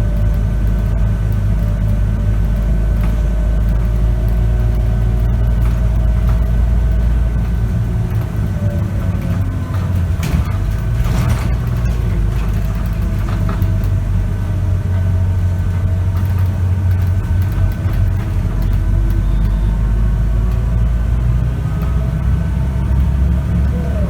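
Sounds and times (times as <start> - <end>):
bus diesel engine droning: 0.0 - 24.0
knocks and rattles: 2.6 - 14.2.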